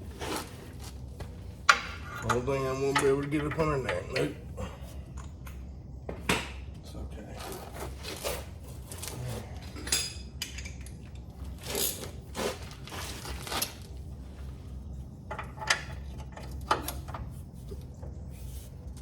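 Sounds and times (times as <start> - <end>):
steady low hum: 0.0 - 19.0
metal tools clinking and clanking: 8.9 - 11.0.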